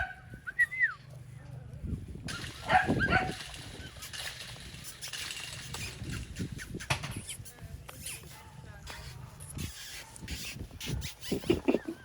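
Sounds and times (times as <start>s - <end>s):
clicks and rustling: 2.3s - 7.3s
short high squeaky calls: 3.6s - 8.4s, 9.0s - 11.7s.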